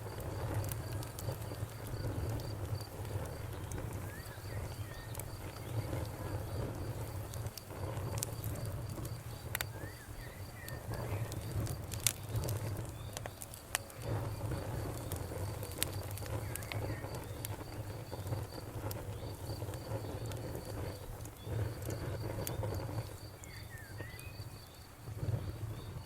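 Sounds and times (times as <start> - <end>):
campfire crackling and popping: 0.0 - 26.0
cricket chirping: 0.0 - 26.0
bird chirping: 23.4 - 24.8.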